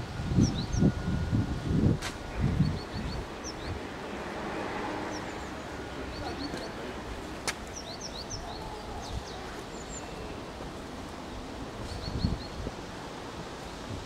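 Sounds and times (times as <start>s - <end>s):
outdoor background noise: 0.0s - 14.0s
small birds chirping: 2.3s - 3.9s, 5.0s - 10.6s, 11.8s - 12.7s.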